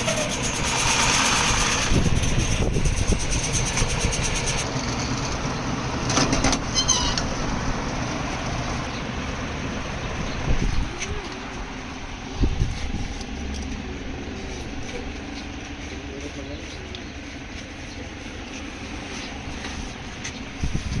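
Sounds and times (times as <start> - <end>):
machine rattling: 0.0 - 4.7
rice milling machine running: 0.0 - 21.0.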